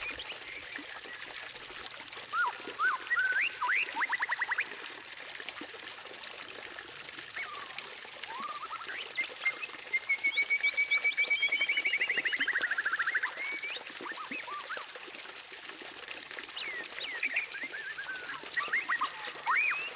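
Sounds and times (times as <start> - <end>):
songbird whistled notes and trill: 2.3 - 7.7, 8.3 - 14.8, 16.6 - 19.9.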